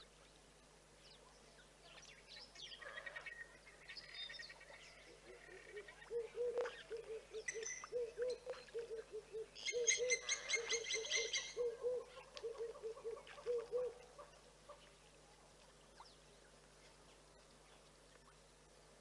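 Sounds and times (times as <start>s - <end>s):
bird low hooting call: 2.6s - 15.0s.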